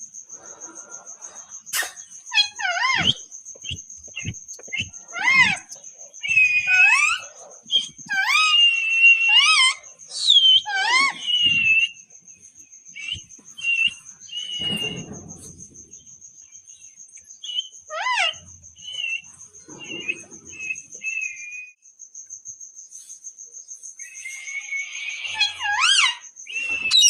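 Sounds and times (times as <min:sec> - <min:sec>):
parrot screeching and whistling: 0:01.7 - 0:12.0, 0:13.0 - 0:15.2, 0:17.4 - 0:19.2, 0:24.0 - 0:27.0.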